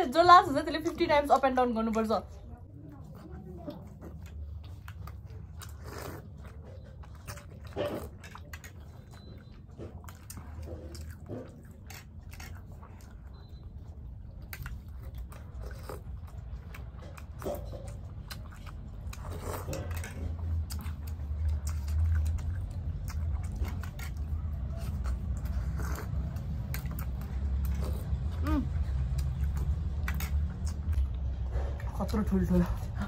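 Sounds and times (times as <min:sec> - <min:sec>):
people chewing with mouth clicks: 0:00.0 - 0:33.0.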